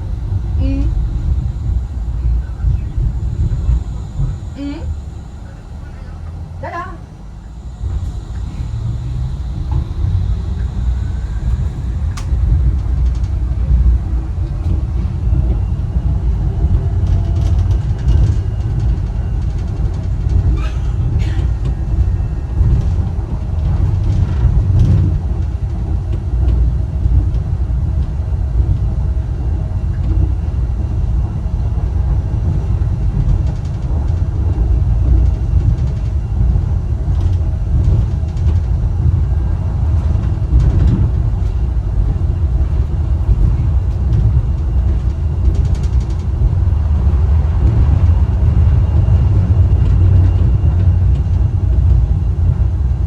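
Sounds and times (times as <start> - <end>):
faint gliding whines: 0.0 - 24.0
suspension railway rumble: 0.0 - 53.0.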